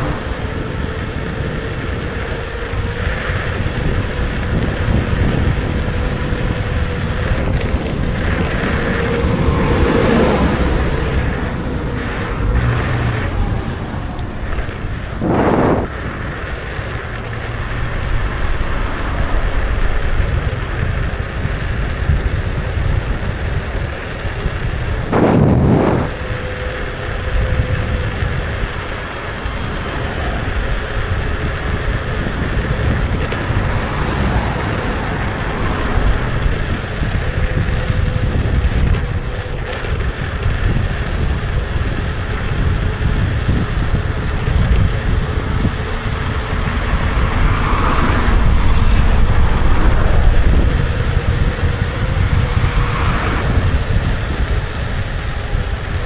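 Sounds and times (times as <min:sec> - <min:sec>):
road rumble: 0:00.0 - 0:56.0
wind buffeting microphone: 0:00.0 - 0:56.0.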